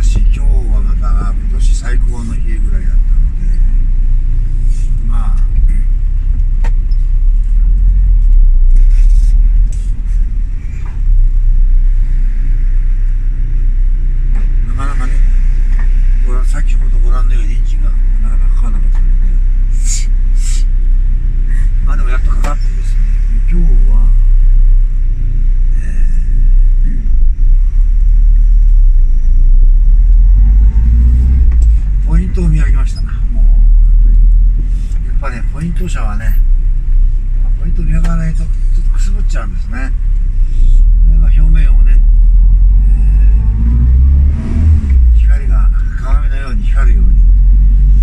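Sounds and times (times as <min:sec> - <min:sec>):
car engine idling: 0:00.0 - 0:48.0.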